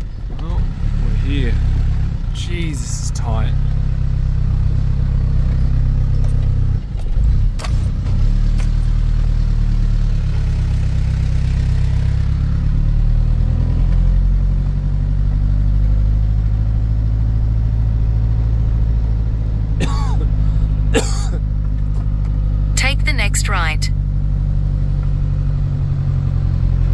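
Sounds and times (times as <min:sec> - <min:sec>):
truck engine droning: 0:00.0 - 0:26.9.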